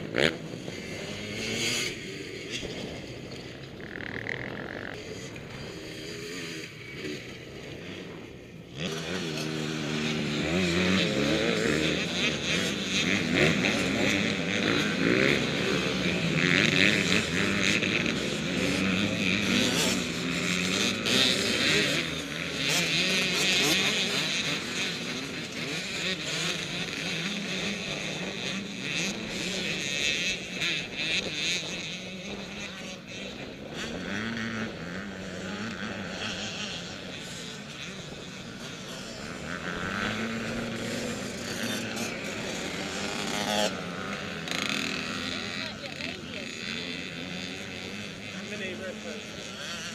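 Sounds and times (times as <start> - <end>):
motorcycles revving past: 0.0 - 49.9.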